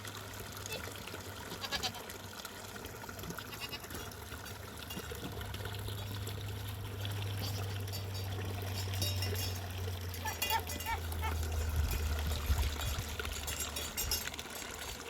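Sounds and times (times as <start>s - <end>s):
water trickling: 0.0s - 15.0s
goats bleating: 1.5s - 2.1s, 3.4s - 4.0s.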